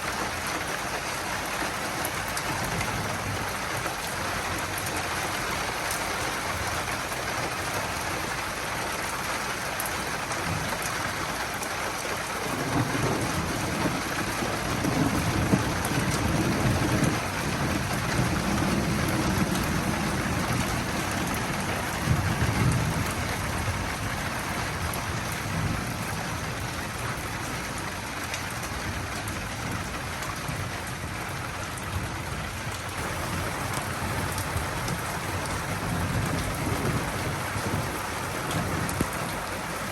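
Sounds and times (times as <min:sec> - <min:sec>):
steady rain falling: 0:00.0 - 0:39.9
thunder rumbling: 0:12.5 - 0:31.2, 0:33.0 - 0:39.9.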